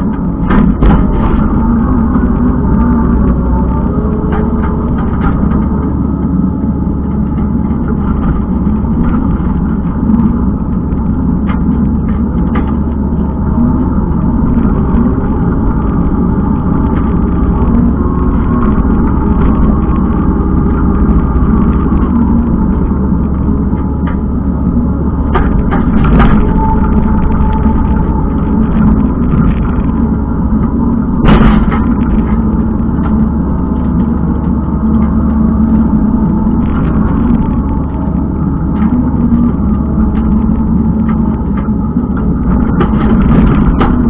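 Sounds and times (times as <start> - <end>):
machine clanks and knocks: 0.0 - 2.4, 25.2 - 35.4, 38.8 - 44.0
diesel engine running under load: 0.0 - 44.0.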